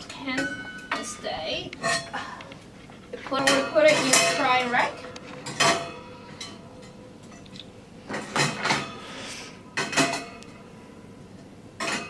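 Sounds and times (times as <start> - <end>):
kitchen items clinking in rack: 3.2 - 7.4, 8.1 - 9.0, 9.8 - 10.4, 11.8 - 12.0.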